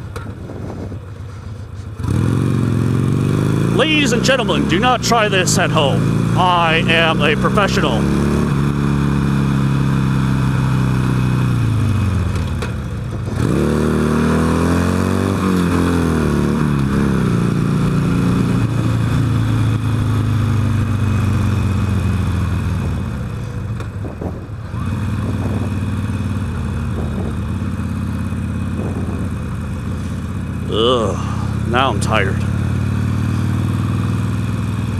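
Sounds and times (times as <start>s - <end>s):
motorcycle engine: 25.0s - 34.9s.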